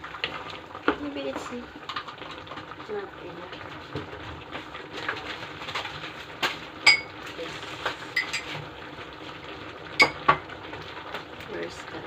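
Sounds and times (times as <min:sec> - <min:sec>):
utensil clinking against pan: 0:06.9 - 0:07.1, 0:08.2 - 0:08.5, 0:10.0 - 0:10.4.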